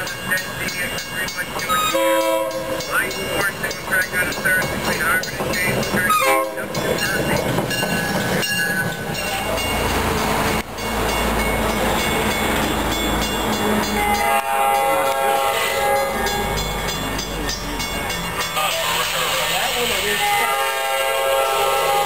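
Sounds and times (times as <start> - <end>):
diesel locomotive approaching: 0.0 - 22.0
train wheels rumbling on rail: 0.0 - 22.0
train air horn chord: 14.0 - 16.5, 19.7 - 22.0.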